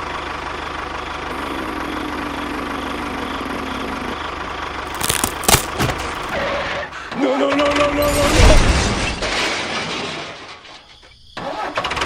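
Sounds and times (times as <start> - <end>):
crashing noise: 4.9 - 6.5.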